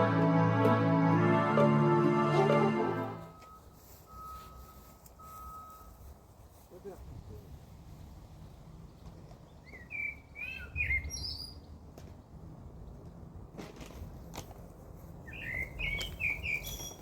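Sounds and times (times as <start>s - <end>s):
songbird chirping and singing: 9.6s - 11.6s, 15.3s - 17.0s.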